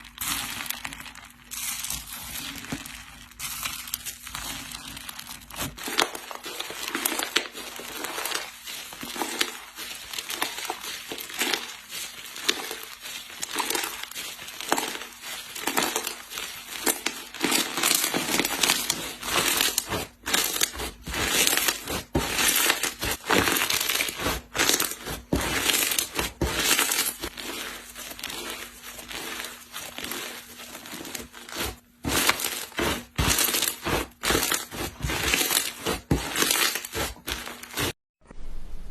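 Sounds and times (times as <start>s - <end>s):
slime squeezed crackling and popping: 0.0s - 27.6s.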